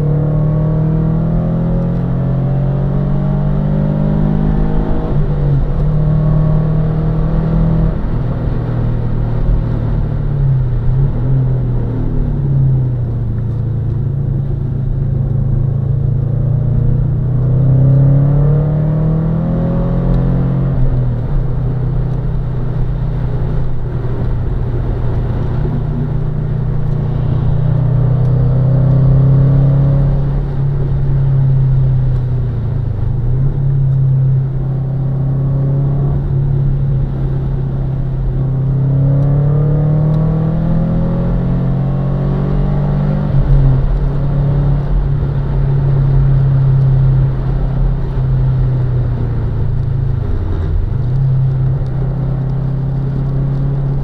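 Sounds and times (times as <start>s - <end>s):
car engine revving hard: 0.0s - 12.2s, 15.7s - 22.0s, 23.3s - 31.8s, 33.5s - 49.3s
road noise: 0.0s - 54.0s.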